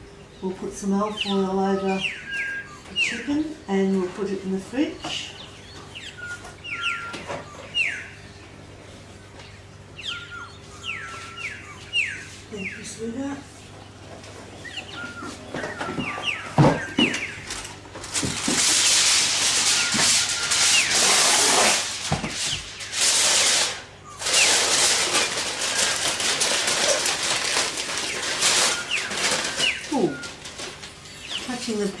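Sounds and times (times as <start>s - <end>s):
aluminium foil rustling: 10.6s - 32.0s.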